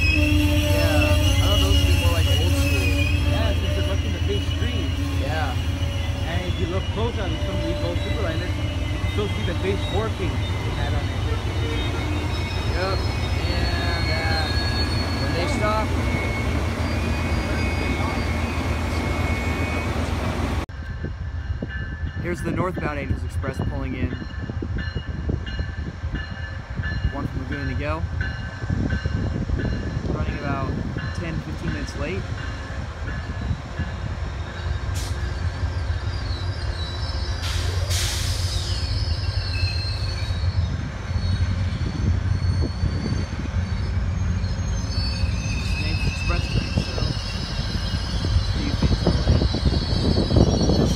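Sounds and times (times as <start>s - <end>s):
wheel and brake squeal: 0.0s - 20.1s, 34.3s - 50.9s
train rumbling: 0.0s - 50.9s.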